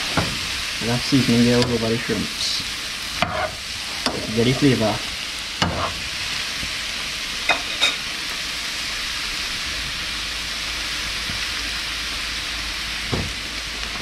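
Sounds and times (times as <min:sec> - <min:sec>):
shrimp sizzling in frying pan: 0:00.0 - 0:14.0.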